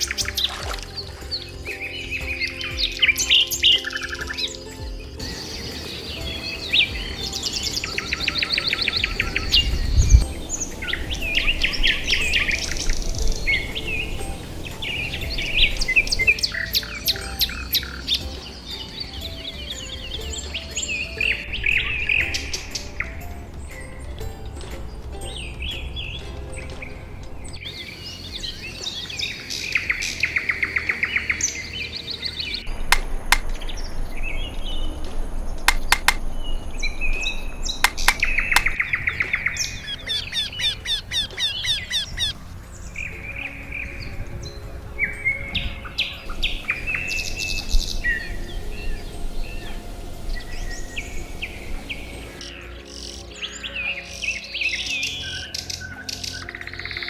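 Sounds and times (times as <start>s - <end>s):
birds chirping and trilling: 0.0s - 57.0s
sharp clicking bird notes: 35.0s - 42.4s.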